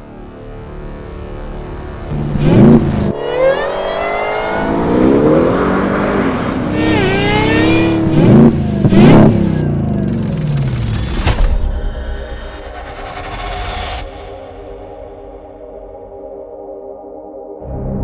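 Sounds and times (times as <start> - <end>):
engine revving hard: 2.1 - 11.4.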